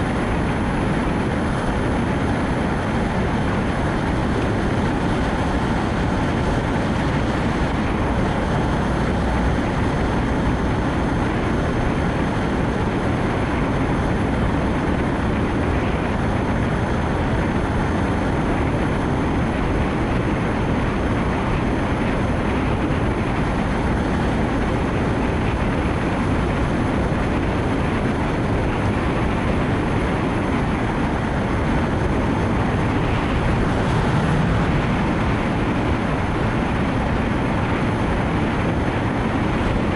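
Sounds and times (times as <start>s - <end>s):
rain: 0.0s - 39.9s
tyres hissing on wet road: 30.9s - 39.4s.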